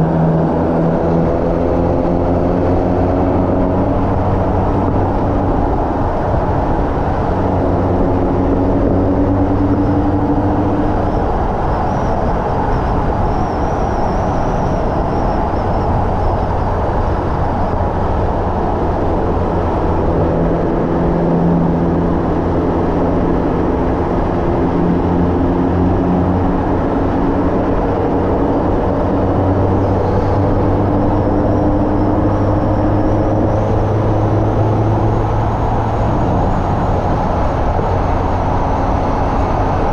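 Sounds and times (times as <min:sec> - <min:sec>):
road and wind noise: 0:00.0 - 0:39.9
car engine revving hard: 0:17.4 - 0:39.9.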